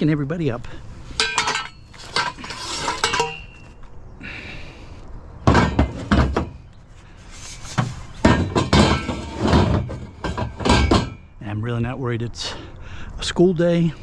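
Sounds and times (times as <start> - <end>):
metal scrape: 1.0 - 3.8, 5.5 - 11.3
metal tubes clanging together: 1.1 - 3.9, 5.5 - 6.8, 7.4 - 11.4
heavy clunks: 5.4 - 6.8, 7.7 - 11.3.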